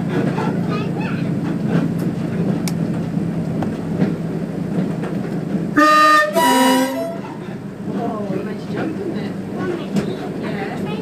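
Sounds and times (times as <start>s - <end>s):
railbus engine and wheels: 0.0s - 11.0s
train horn blasts: 5.8s - 7.4s.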